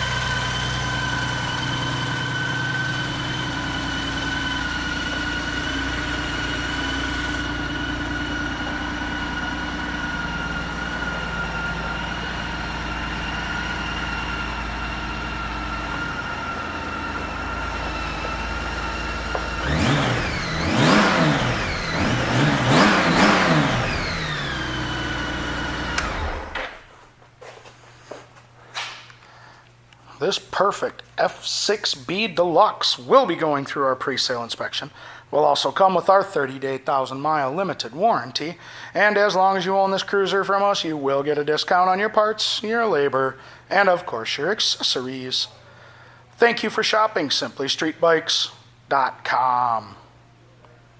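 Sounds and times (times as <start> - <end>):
motorcycle engine idling and revving: 0.0 - 26.9.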